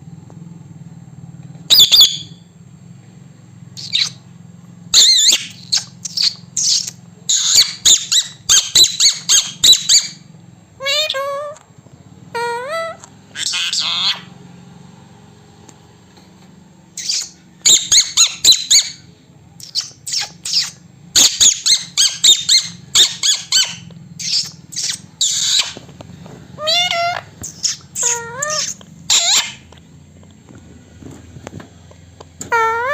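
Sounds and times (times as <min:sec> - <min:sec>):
parrot squeaking and chirping: 0:01.7 - 0:02.4, 0:03.8 - 0:04.2, 0:04.9 - 0:11.6, 0:12.3 - 0:14.3, 0:17.0 - 0:25.9, 0:26.6 - 0:29.7, 0:32.4 - 0:32.9.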